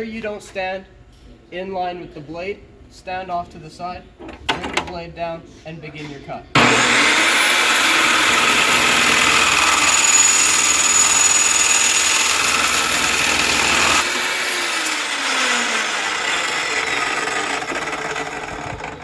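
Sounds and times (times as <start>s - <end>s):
chop saw grinding through metal: 6.6s - 19.0s
motor spinning down whine: 6.6s - 19.0s.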